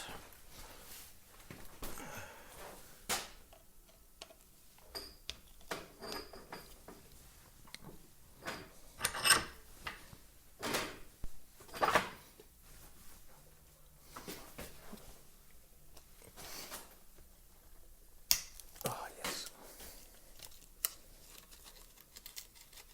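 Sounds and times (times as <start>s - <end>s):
tools and plastic parts clattering: 8.4s - 9.6s, 20.3s - 22.9s.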